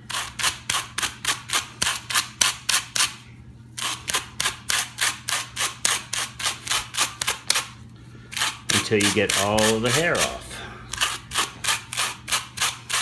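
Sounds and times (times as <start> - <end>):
wire brush scratching strokes: 8.4 - 13.0.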